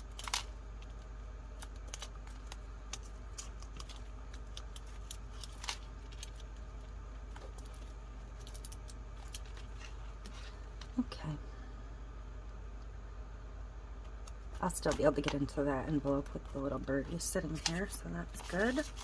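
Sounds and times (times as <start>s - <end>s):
steady low hum: 0.0s - 19.0s
paper and craft supplies handled: 7.3s - 10.6s, 16.0s - 19.0s.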